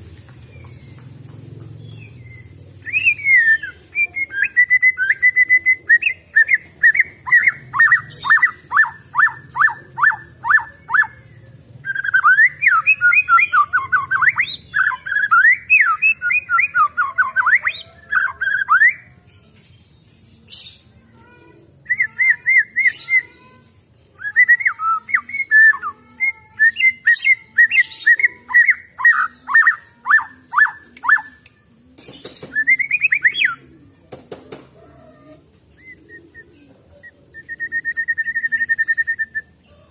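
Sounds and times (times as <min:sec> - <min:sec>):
songbird whistling and trilling: 0:02.3 - 0:11.2, 0:11.8 - 0:19.1, 0:21.9 - 0:23.4, 0:24.2 - 0:31.5, 0:32.4 - 0:33.6, 0:37.0 - 0:39.6.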